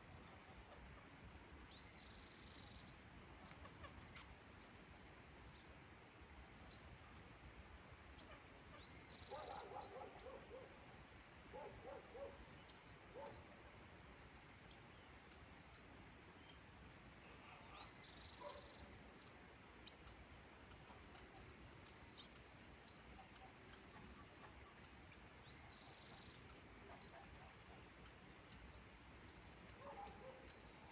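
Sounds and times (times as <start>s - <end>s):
insect hiss: 0.0s - 30.9s
rapid animal calls: 8.3s - 10.7s.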